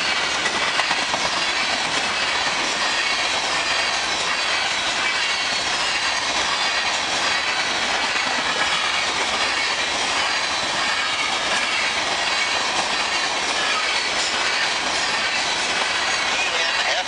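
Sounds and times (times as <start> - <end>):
steel wheels rushing on rail: 0.0 - 17.0.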